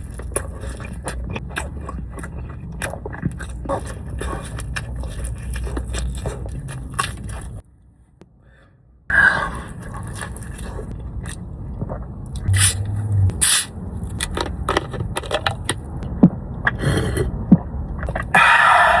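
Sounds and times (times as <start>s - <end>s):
person chewing food: 0.0s - 7.7s, 9.4s - 13.4s.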